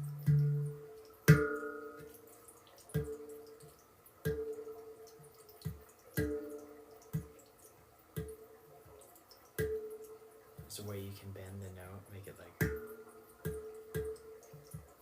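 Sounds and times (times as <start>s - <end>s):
handpan notes ringing: 0.0s - 2.3s, 6.2s - 6.8s.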